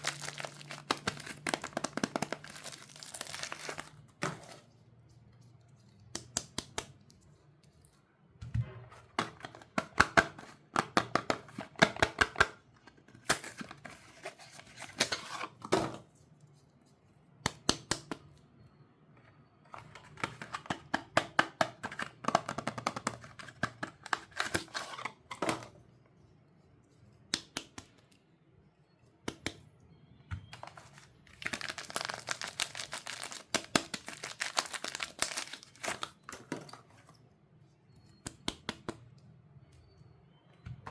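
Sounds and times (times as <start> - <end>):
packaging crinkling and tearing: 0.0 - 4.6, 30.6 - 36.3.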